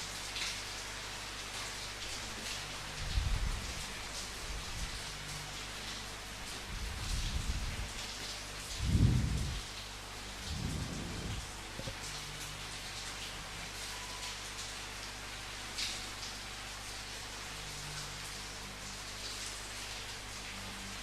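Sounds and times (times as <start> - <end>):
steady rain falling: 0.0 - 21.0
thunder rumbling: 8.8 - 9.7, 10.4 - 11.9.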